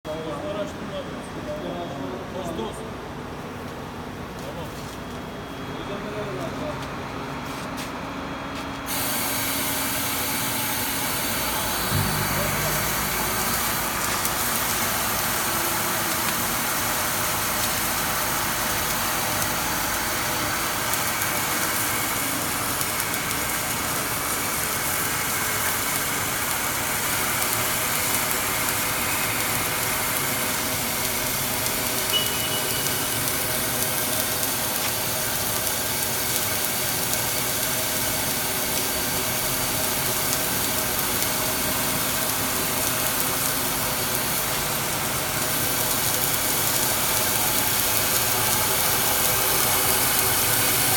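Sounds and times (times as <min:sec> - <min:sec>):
welding machine hum and hiss: 0:03.3 - 0:50.9
short high tone: 0:11.9 - 0:14.1, 0:32.1 - 0:33.6.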